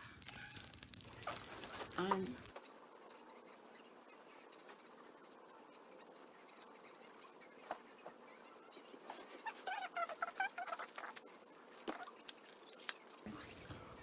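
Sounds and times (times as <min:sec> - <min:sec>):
squishy toy squeaks: 0:00.3 - 0:02.5, 0:09.1 - 0:11.3.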